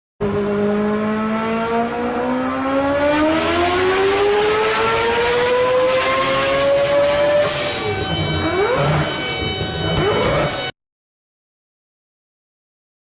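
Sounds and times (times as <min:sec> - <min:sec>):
electric locomotive motors whining: 0:07.4 - 0:10.7.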